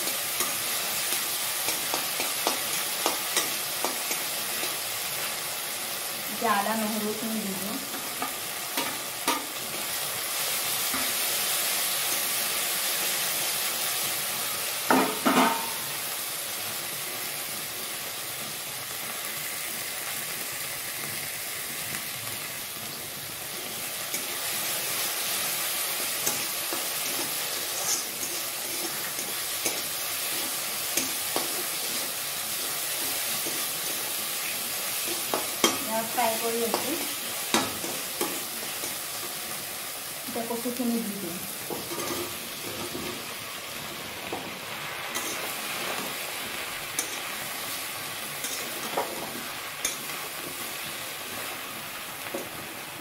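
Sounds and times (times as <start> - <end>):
food sizzling in hot oil: 0.0 - 53.0
metal spatula scraping wok: 26.1 - 32.2, 41.7 - 43.3, 45.1 - 46.2, 46.9 - 47.7, 48.3 - 50.6.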